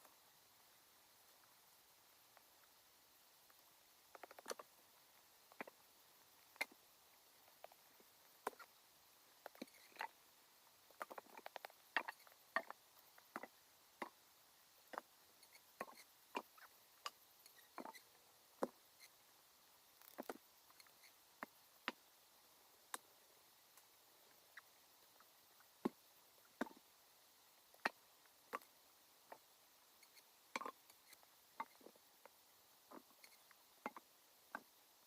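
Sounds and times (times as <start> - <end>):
faint sharp ticks and taps: 20.0 - 22.0.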